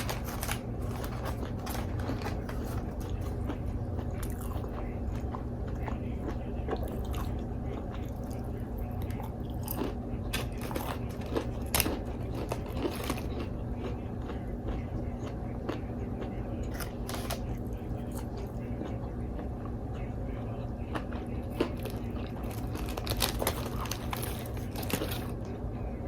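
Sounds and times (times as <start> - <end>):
wet chewing: 0.0 - 19.6, 20.9 - 25.4
low hum: 0.0 - 26.0
crunchy bites: 8.0 - 13.5, 16.6 - 18.5, 21.0 - 25.4.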